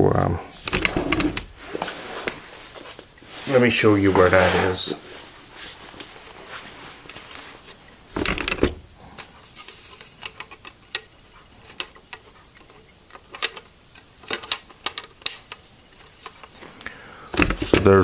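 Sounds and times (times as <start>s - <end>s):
rattling knock: 0.6s - 1.6s, 8.1s - 8.9s, 17.4s - 18.0s.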